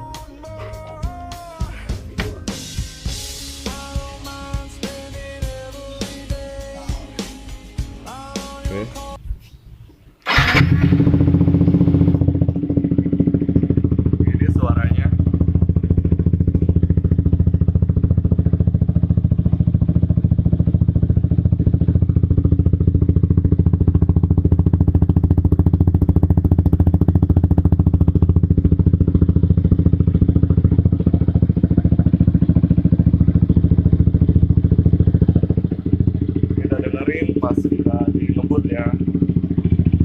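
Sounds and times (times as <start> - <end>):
motorcycle engine idling: 10.3 - 40.0.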